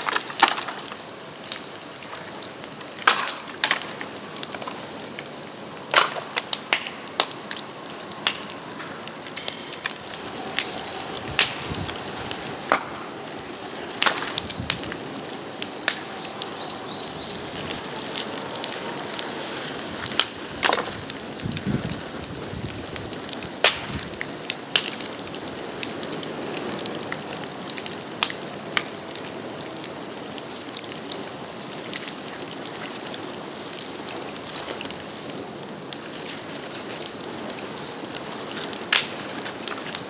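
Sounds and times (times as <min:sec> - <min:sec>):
hiss of flames: 0:00.0 - 0:40.0
bamboo cracking and popping: 0:02.9 - 0:10.7.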